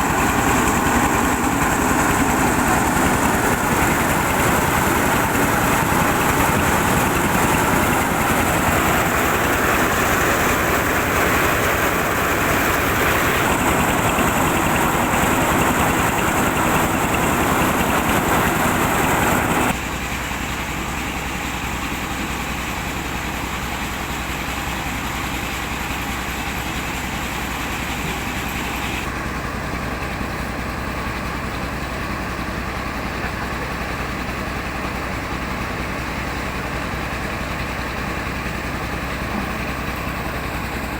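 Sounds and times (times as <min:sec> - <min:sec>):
milling machinery hissing whir: 0:00.0 - 0:19.8.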